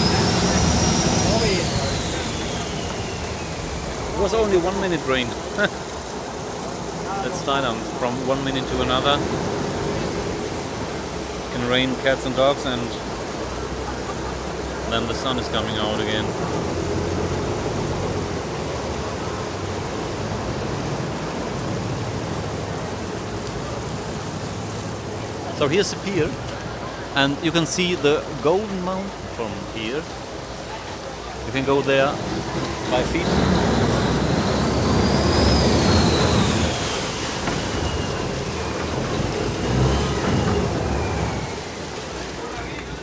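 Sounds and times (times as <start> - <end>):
faint high whine: 0.0 - 5.8, 31.5 - 42.9
boat engine running: 0.0 - 43.0
rush of water: 0.0 - 43.0.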